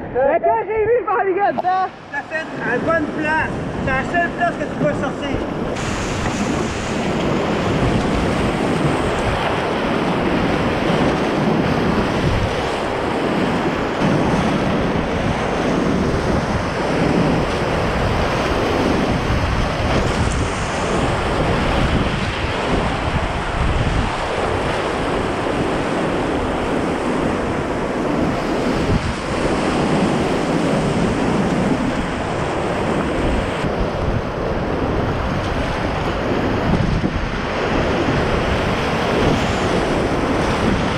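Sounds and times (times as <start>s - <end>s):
wind buffeting microphone: 0.0s - 40.9s
rapids rushing roar: 1.2s - 40.9s.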